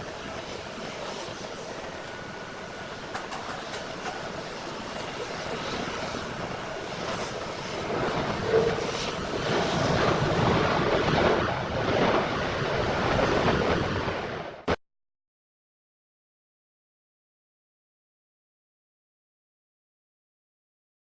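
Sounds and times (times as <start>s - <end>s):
jet engine rushing: 0.0s - 14.7s.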